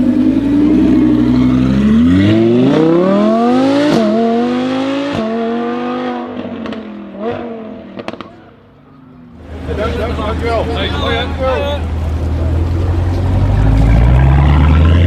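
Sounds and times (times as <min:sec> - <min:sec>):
sports car engine accelerating: 0:00.0 - 0:08.5, 0:09.4 - 0:15.0.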